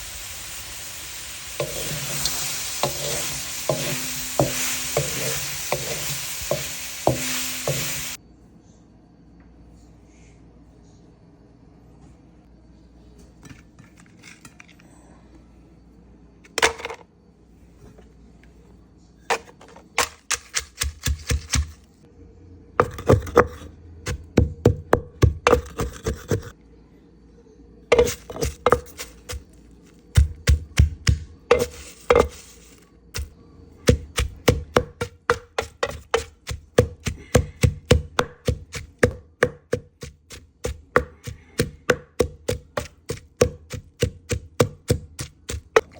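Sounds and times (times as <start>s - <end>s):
knife chopping on a board: 20.0s - 21.8s, 22.8s - 26.5s, 27.9s - 29.5s, 30.2s - 32.4s, 33.2s - 45.9s.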